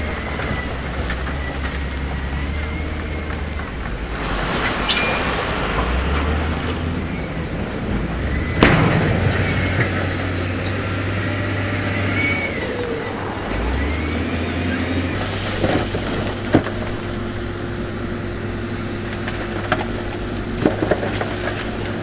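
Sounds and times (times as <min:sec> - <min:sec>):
faint squeals: 0:00.0 - 0:15.2
diesel machinery engine running: 0:00.0 - 0:22.0.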